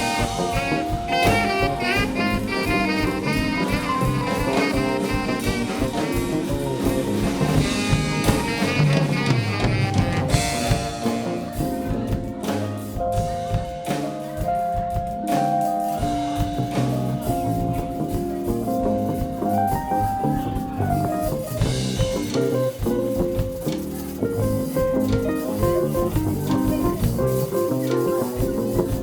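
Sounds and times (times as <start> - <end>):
melody of long held notes: 0.0 - 12.5
drum kit: 0.0 - 29.0
guitar: 0.0 - 29.0.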